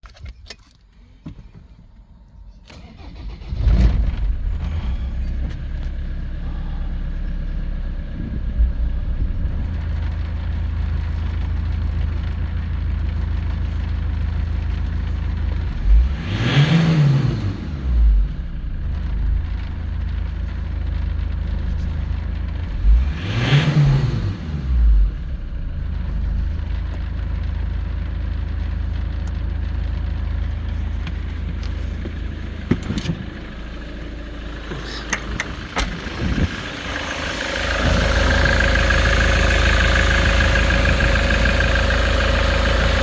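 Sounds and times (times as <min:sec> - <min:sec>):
diesel engine starting and idling: 0:01.8 - 0:43.0
engine revving: 0:02.7 - 0:12.6, 0:15.0 - 0:20.0, 0:21.7 - 0:27.1, 0:30.7 - 0:43.0.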